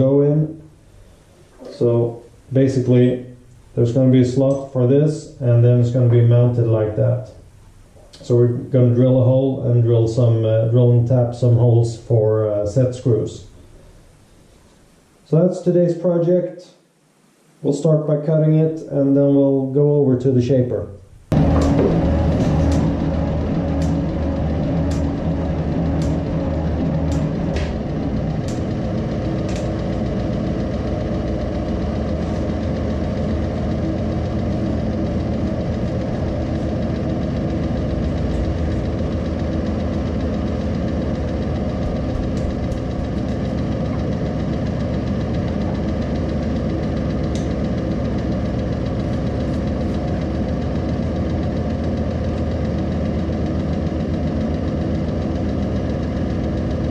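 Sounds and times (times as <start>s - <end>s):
machine motor hum: 0.0s - 15.3s, 21.0s - 56.9s
fast knocking rattle: 21.3s - 56.9s
sharp clicks: 38.2s - 48.3s.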